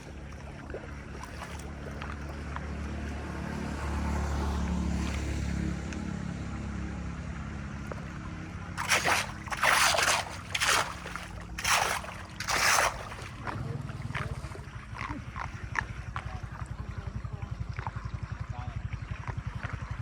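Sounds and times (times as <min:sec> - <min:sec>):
water splashing: 0:00.0 - 0:05.6, 0:07.9 - 0:15.7
low motor hum: 0:00.0 - 0:20.0.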